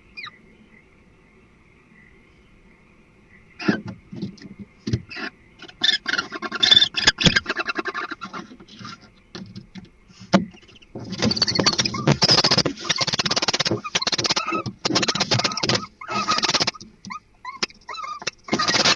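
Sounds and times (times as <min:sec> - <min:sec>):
owls chittering: 0:00.0 - 0:00.4, 0:05.1 - 0:09.1, 0:10.5 - 0:18.9
owl hissing call: 0:10.6 - 0:18.9.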